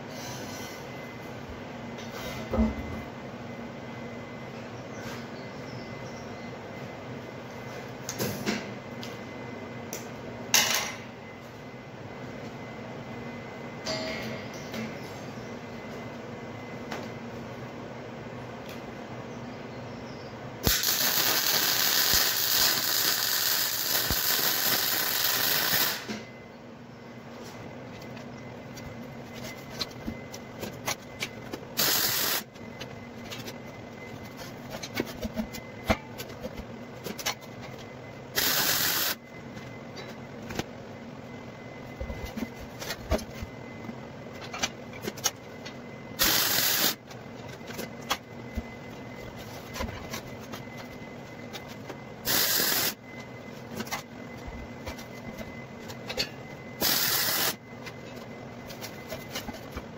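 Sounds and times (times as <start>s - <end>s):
steady background hum: 0.0s - 59.9s
welder hissing: 20.6s - 26.1s, 31.8s - 32.4s, 38.4s - 39.2s, 46.2s - 47.0s, 52.3s - 53.0s, 56.8s - 57.6s.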